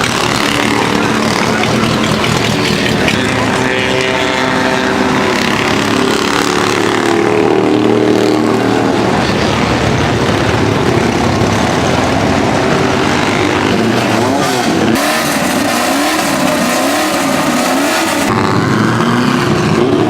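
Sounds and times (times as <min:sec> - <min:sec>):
racing engines at speed: 0:00.0 - 0:20.0.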